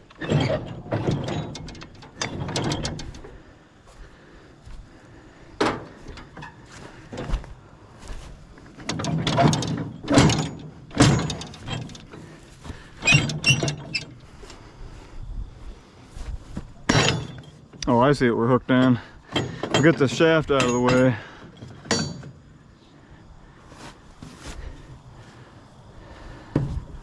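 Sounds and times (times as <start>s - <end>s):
metal clanks and knocks: 0.0s - 3.5s, 5.6s - 14.5s, 16.7s - 18.1s, 18.8s - 22.6s.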